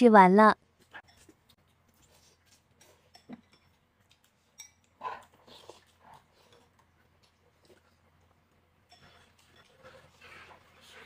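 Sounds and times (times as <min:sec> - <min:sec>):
slurping and chewing noodles: 0:03.7 - 0:11.0.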